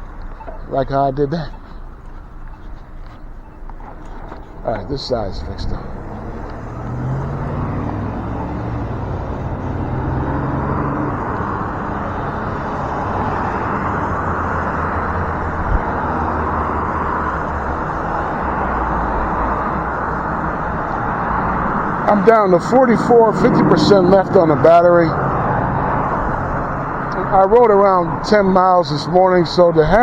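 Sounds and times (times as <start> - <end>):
low engine hum: 0.0 - 30.0
passing cars rushing: 3.7 - 30.0.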